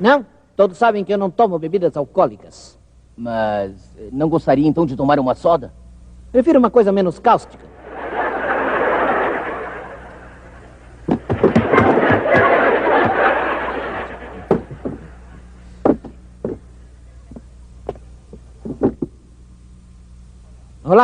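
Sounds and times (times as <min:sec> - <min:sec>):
audience laughter: 0:07.7 - 0:15.7
sharp knocks: 0:11.1 - 0:13.2, 0:14.5 - 0:15.1.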